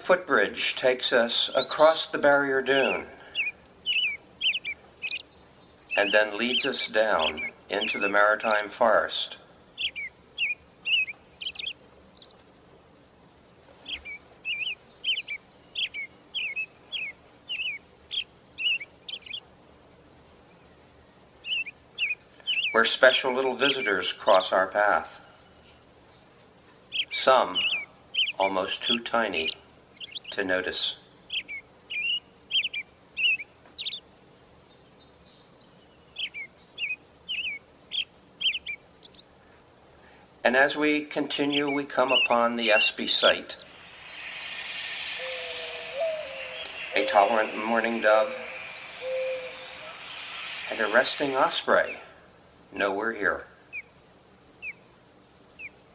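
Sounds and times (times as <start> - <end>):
bird calling: 1.4 - 2.0, 2.6 - 8.7, 9.7 - 12.4, 13.8 - 19.4, 21.4 - 24.0, 26.9 - 34.1, 35.7 - 39.4, 41.2 - 52.1, 54.6 - 54.8.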